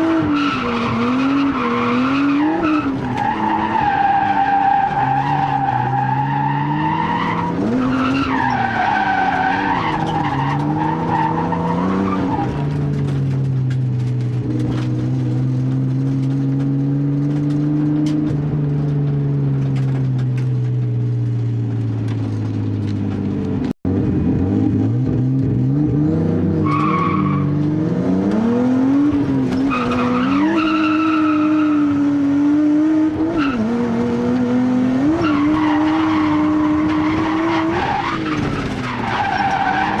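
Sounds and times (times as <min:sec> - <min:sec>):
car engine revving: 0:00.0 - 0:40.0
tyres squealing: 0:35.2 - 0:40.0.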